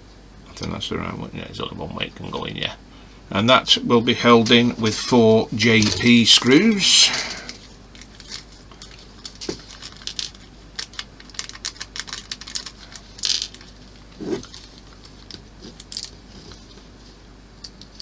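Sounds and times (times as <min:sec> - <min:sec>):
small plastic parts clicking: 0:09.7 - 0:13.7.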